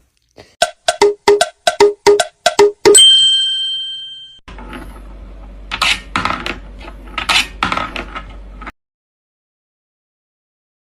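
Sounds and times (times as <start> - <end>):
rhythmic clicking beat: 0.6 - 3.0
bright metallic ding: 2.9 - 4.4.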